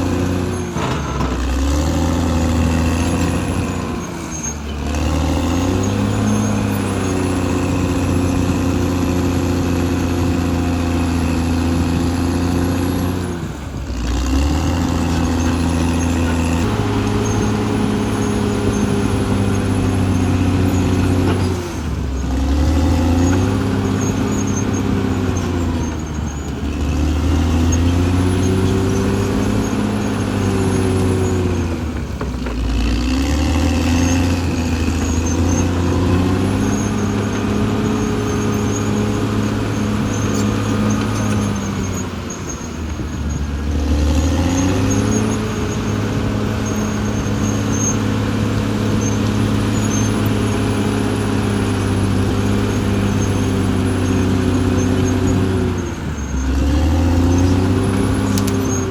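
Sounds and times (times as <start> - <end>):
bulldozer diesel engine: 0.0 - 58.9.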